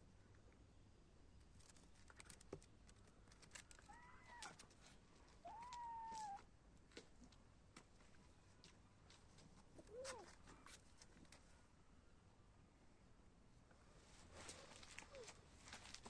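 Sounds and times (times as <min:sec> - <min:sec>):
kitten meowing: 0:05.4 - 0:06.4.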